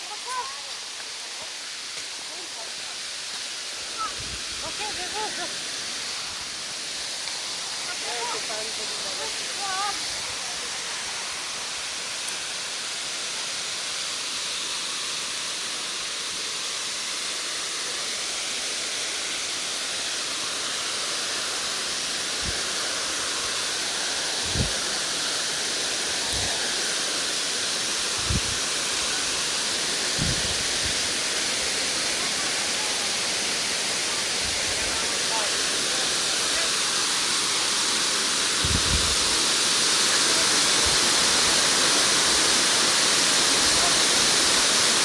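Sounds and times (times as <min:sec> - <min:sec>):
waterfall roaring: 0:00.0 - 0:45.0.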